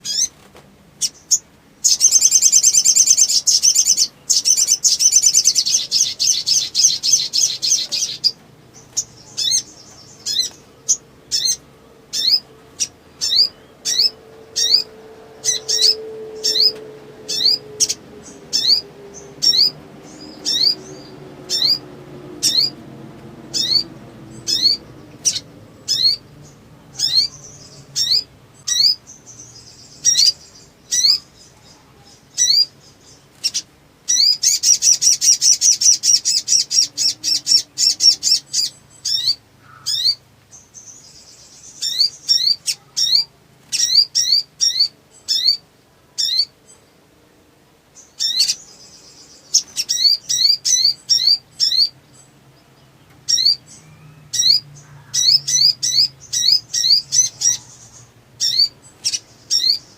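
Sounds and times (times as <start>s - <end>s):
bird chattering trill: 1.0s - 21.8s, 22.4s - 22.8s, 23.5s - 40.2s, 48.0s - 52.0s, 53.3s - 59.9s.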